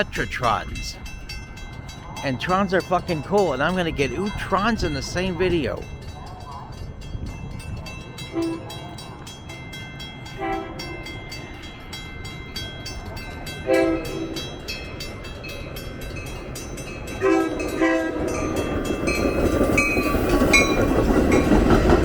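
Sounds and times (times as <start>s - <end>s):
bell ringing rapidly: 0.0s - 13.6s
train rumbling: 0.0s - 22.0s
train horn short blasts: 10.4s - 10.9s, 13.7s - 14.4s, 17.2s - 18.2s.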